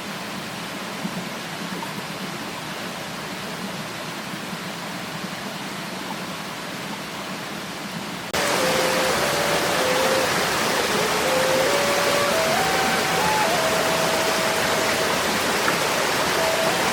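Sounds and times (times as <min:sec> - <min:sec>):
rushing water: 0:00.0 - 0:16.9
thin tone stepping between pitches: 0:08.4 - 0:16.9.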